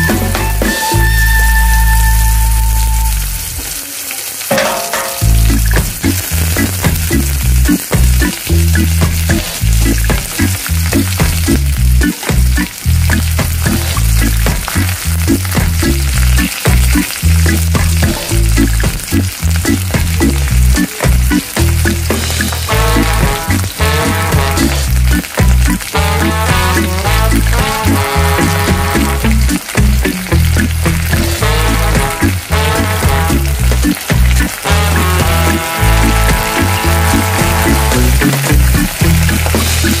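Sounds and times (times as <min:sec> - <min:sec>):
eggplant sizzling in frying pan: 0:00.0 - 0:40.0
slices knocking in pan: 0:04.5 - 0:11.7.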